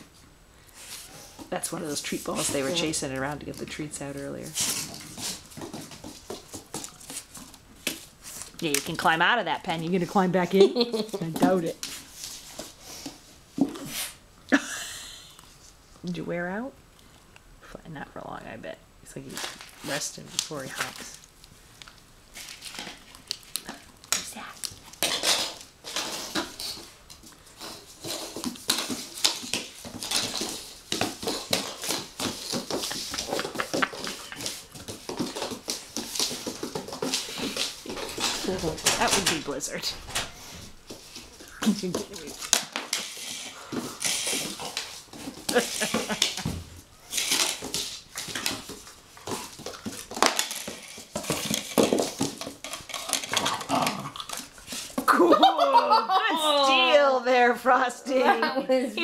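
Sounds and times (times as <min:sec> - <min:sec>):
scuffling with clicks and knocks: 0:22.3 - 0:55.1
clattering and scraping on hard surface: 0:22.4 - 0:55.1.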